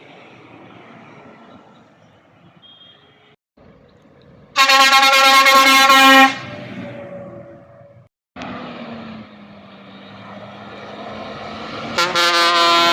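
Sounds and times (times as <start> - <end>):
road traffic hum: 0.0 - 12.9
low engine tone: 3.6 - 12.9
truck air horn blast: 4.6 - 7.6, 11.8 - 12.9.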